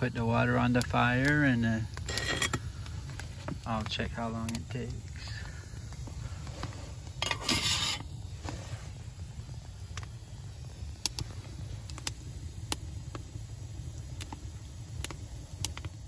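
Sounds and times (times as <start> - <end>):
fire popping and crackling: 0.0 - 16.0
low rumble of burning fire: 0.0 - 16.0
metal pot scraping: 2.0 - 2.7, 6.4 - 8.8.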